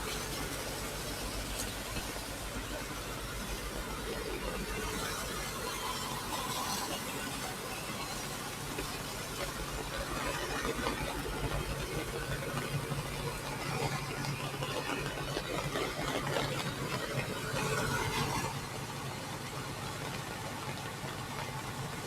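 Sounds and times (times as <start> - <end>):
constant rushing noise: 0.0 - 22.0
engine running steadily: 0.0 - 22.0.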